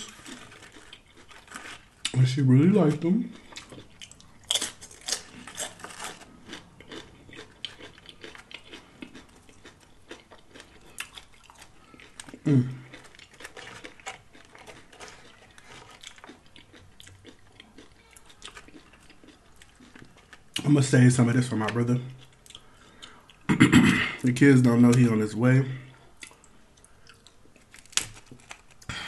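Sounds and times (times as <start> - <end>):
chewing and crunching chips: 0.0 - 23.5, 25.9 - 29.0.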